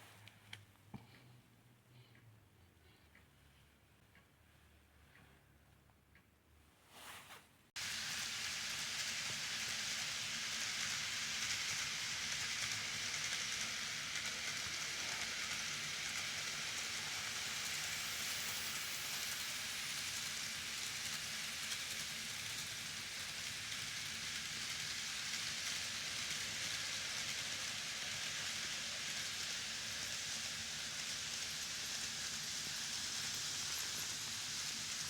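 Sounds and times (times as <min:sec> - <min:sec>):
model train motor whirring: 0:07.8 - 0:35.0.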